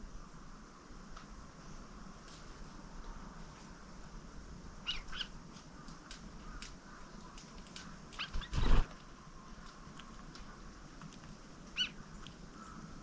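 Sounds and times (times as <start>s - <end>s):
songbirds chip calls: 4.8s - 13.0s
loud rustle or thump: 8.3s - 9.0s.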